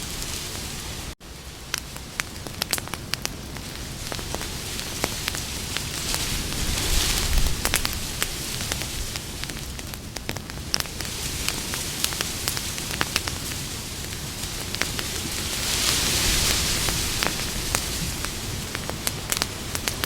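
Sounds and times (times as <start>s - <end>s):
campfire crackling and popping: 0.0s - 20.0s
hiss and rumble of burning: 0.0s - 20.0s.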